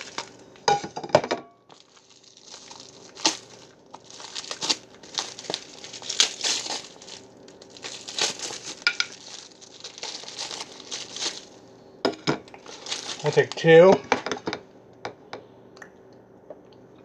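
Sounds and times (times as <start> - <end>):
wrapping crumpling: 0.0 - 0.8, 1.7 - 11.8, 12.5 - 13.9.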